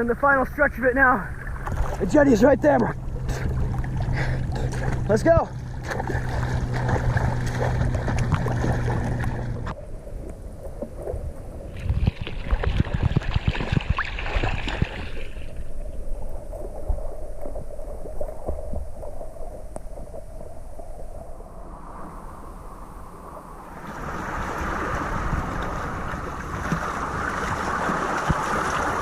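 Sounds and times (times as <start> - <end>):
steady low hum: 0.0 - 12.2
sea water splashing: 1.1 - 29.0.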